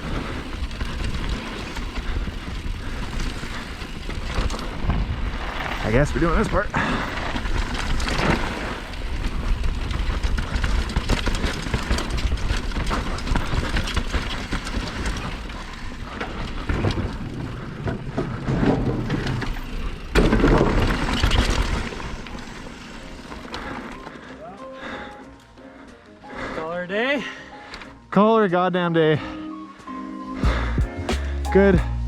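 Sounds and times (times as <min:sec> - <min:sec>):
bike chain and frame rattling: 0:00.0 - 0:24.2
bike tyres rumbling over rocks: 0:00.0 - 0:24.2.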